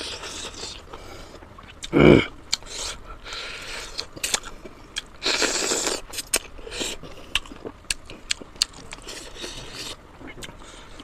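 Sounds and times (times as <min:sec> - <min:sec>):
wet chewing and biting: 0:03.7 - 0:11.0.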